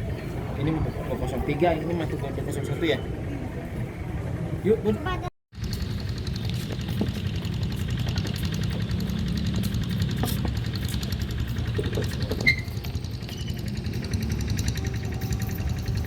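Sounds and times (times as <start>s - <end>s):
diesel locomotive engine running: 5.6s - 16.0s
short high squeak: 12.4s - 13.6s.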